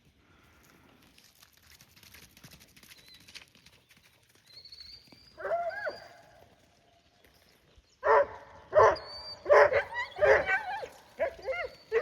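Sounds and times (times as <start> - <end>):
faint outdoor noise: 0.0 - 12.0
dog yelping: 8.1 - 12.0.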